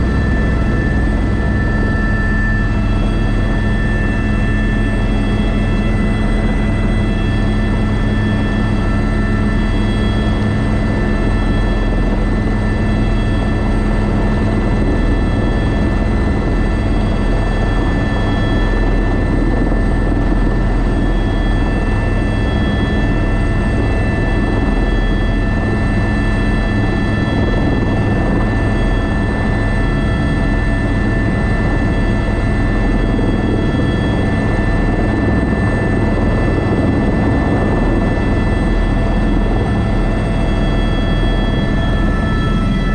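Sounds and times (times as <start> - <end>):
helicopter rotor drone: 0.0 - 42.9
turbine whine: 0.0 - 42.9.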